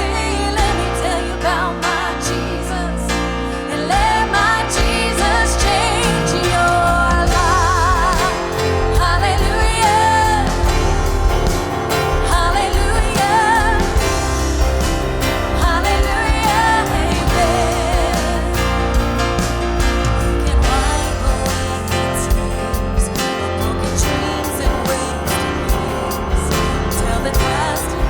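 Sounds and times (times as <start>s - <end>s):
live band playing: 0.0s - 28.0s
person singing with vibrato: 0.0s - 28.0s.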